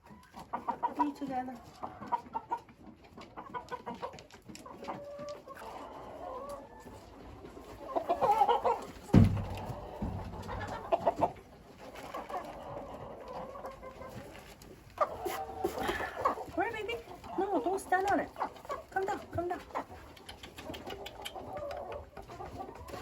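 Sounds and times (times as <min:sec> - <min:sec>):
chickens clucking: 0:00.0 - 0:23.0
sharp thump: 0:09.1 - 0:10.4.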